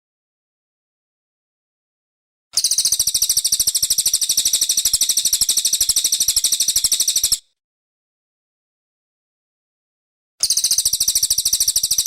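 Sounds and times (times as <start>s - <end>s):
songbird trilling: 2.6s - 7.4s, 10.4s - 12.0s.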